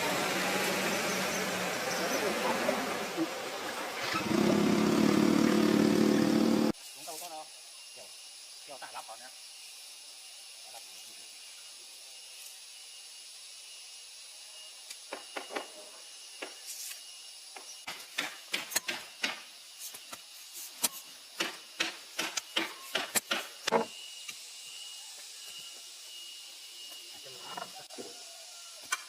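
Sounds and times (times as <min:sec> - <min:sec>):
sharp irregular clicks and knocks: 0:21.4 - 0:23.8.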